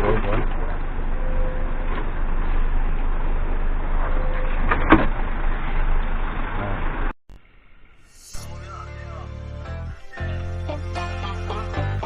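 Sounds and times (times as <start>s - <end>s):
truck engine humming: 7.4s - 12.0s
short sharp squeal: 8.0s - 10.5s.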